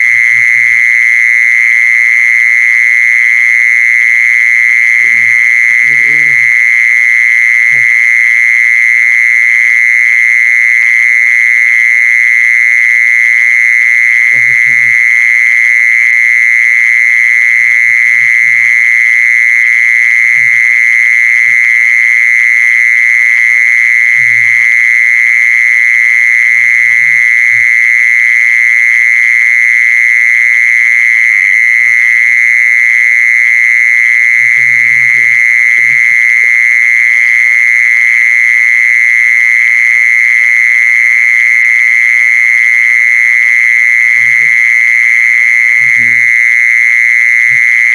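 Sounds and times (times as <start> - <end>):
insect high-pitched call: 0.0 - 47.9.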